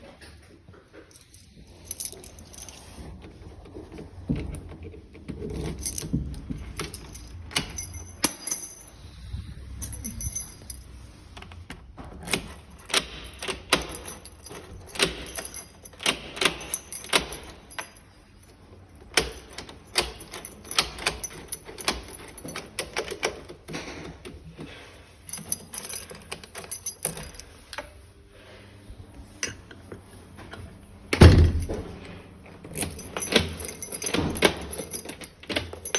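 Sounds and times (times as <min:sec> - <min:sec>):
metal keys clinking: 0:01.0 - 0:03.0, 0:05.4 - 0:11.1, 0:12.2 - 0:23.7, 0:24.6 - 0:27.9, 0:31.2 - 0:32.0, 0:32.6 - 0:35.9.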